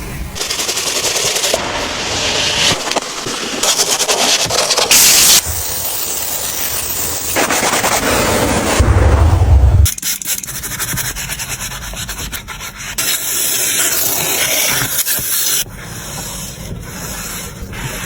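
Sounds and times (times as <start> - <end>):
crackling scrubbing: 0.4 - 8.9.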